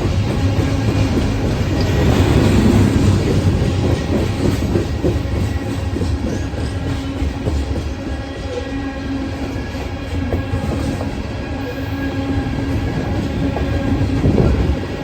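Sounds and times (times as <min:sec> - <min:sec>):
train wheels clacking over rail joints: 0:00.0 - 0:08.4
low train rumble: 0:00.0 - 0:15.0.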